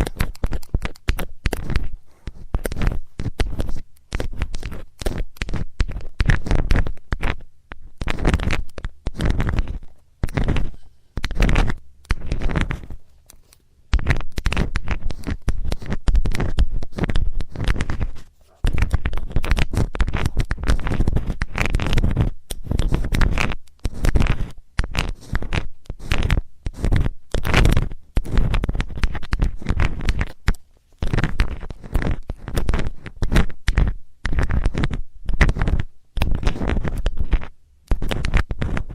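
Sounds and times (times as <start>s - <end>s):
metal tool scraping in ear: 10.2s - 13.6s.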